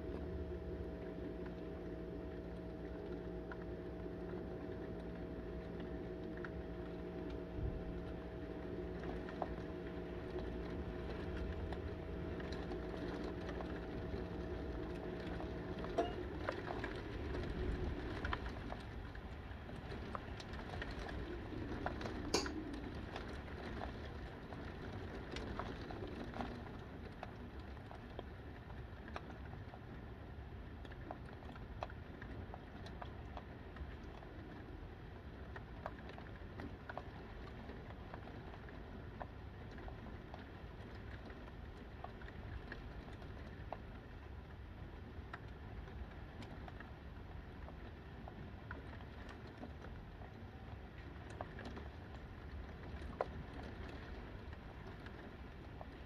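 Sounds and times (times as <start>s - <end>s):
low hum: 0.0s - 23.8s
heavy wind-driven rain: 9.6s - 26.3s.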